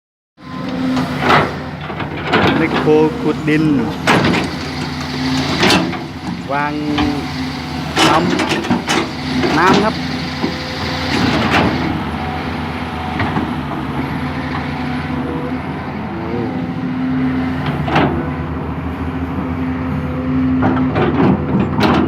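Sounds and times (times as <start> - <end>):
excavator diesel engine running: 0.4 - 22.0
digging soil: 0.7 - 18.4
sharp metal knocks and clanks: 4.0 - 10.6.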